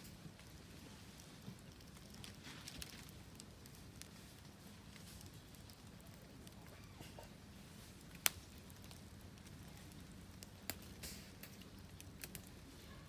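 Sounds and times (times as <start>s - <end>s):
wood fire crackling: 0.0s - 13.0s
sharp fire pops: 7.9s - 12.7s.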